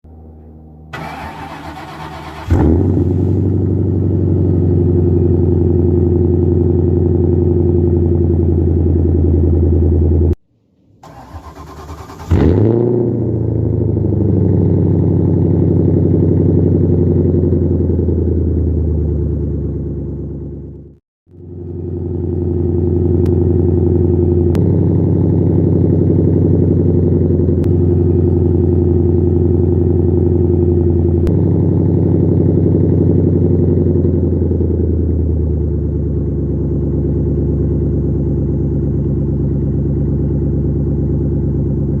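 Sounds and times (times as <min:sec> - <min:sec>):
car engine idling: 0:00.5 - 0:12.6, 0:13.2 - 0:42.0.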